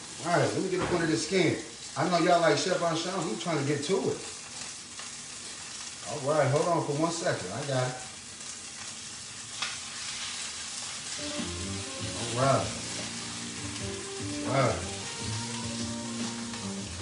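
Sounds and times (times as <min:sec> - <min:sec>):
fish sizzling in a frying pan: 0:00.0 - 0:17.0
background music: 0:11.2 - 0:17.0.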